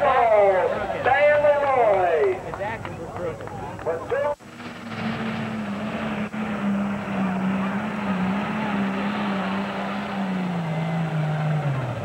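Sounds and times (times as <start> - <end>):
diesel tractor engine at high revs: 4.2 - 12.0.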